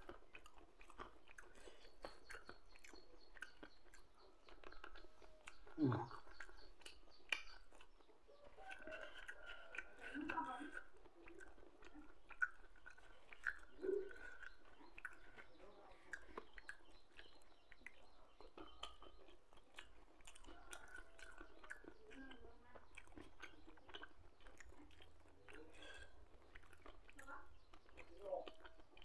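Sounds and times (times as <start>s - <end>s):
wet mouth clicks: 0.0s - 8.0s, 8.8s - 29.0s
person chewing food: 0.0s - 29.0s.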